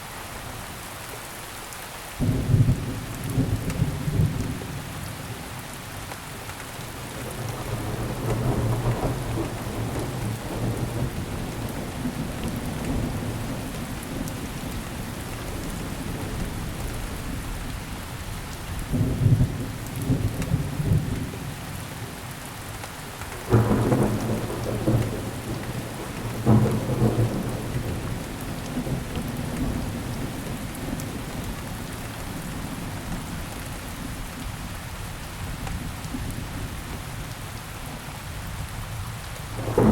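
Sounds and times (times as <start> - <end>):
steady rain falling: 0.0 - 39.9
thunder rumbling: 7.0 - 17.7, 23.4 - 33.3, 39.6 - 39.9.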